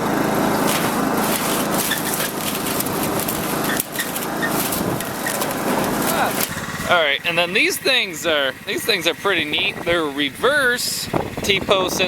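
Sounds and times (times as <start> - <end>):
tractor engine running: 0.0 - 12.0
wind buffeting microphone: 9.3 - 12.0.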